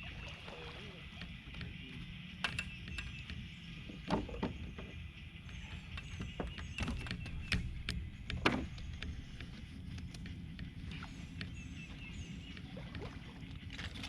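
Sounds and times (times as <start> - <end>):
knocks and clunks on a boat: 0.0 - 14.0
steady low rumble: 0.0 - 14.0.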